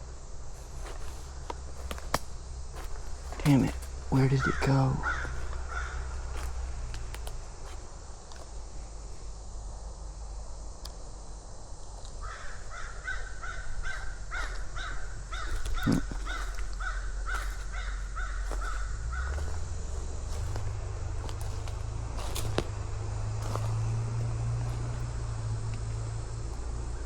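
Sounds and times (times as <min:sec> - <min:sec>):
crow cawing: 0:02.8 - 0:06.7, 0:12.2 - 0:22.7.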